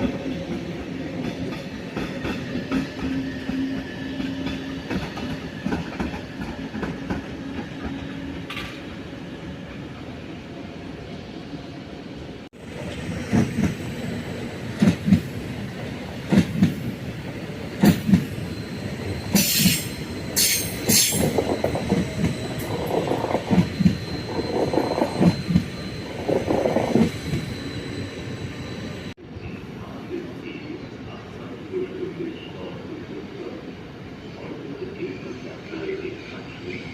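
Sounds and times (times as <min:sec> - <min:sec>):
train rumbling on rails: 0:00.0 - 0:36.9
high-pitched wheel squeals: 0:18.2 - 0:29.2.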